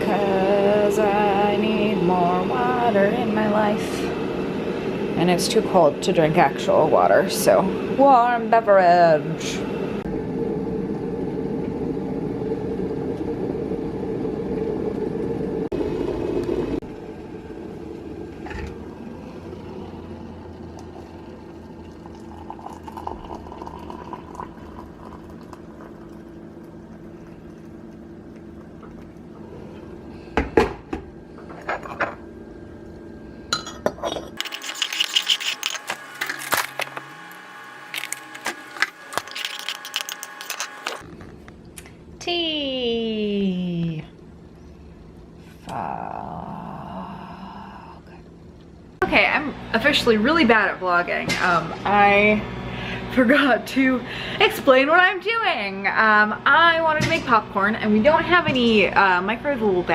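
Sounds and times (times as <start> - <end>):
appliance hum: 0.0 - 59.9
clinking mugs and dishes: 33.5 - 34.4.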